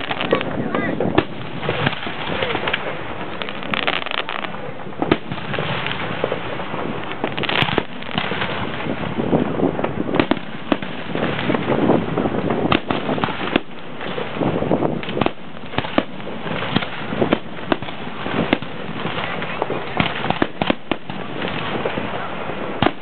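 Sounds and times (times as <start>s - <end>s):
fireworks bursting: 0.0s - 23.0s.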